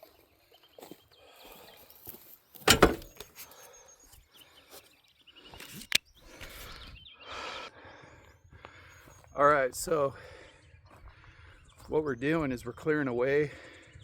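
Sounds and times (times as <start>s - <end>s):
wood shuffling: 2.7s - 3.1s
wood thumping: 2.7s - 3.1s.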